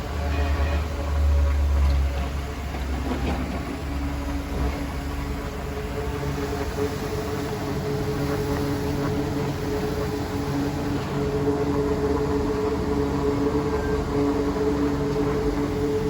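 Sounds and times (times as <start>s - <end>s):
motor hum: 0.0s - 16.0s
fan air rushing: 3.4s - 16.0s.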